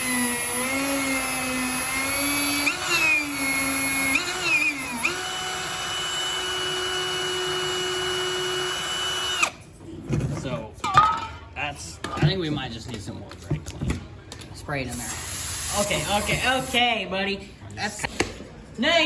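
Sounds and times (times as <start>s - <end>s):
power drill drilling into metal: 0.0s - 9.6s.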